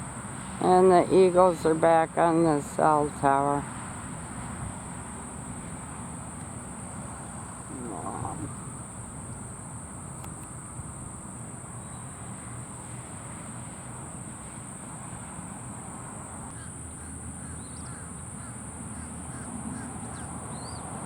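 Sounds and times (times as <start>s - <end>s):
high insect drone: 0.0s - 21.0s
low background rumble: 6.8s - 9.4s.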